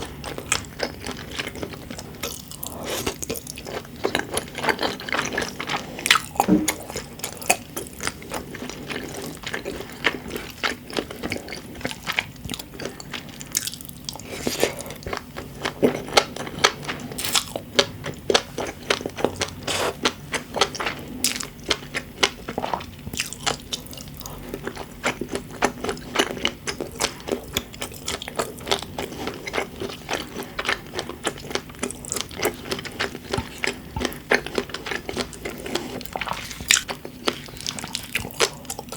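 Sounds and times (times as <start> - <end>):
chewing and biting food: 0.0 - 38.9.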